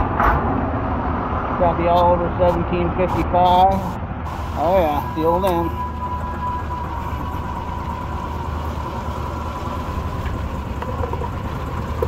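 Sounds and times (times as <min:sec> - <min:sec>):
faint whine: 0:02.2 - 0:12.0
golf cart rumbling: 0:03.5 - 0:12.0.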